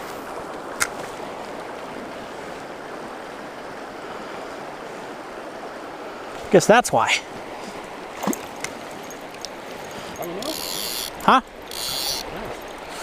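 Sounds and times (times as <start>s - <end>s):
stream flowing: 0.0s - 13.0s
sharp click or splash: 8.2s - 9.6s.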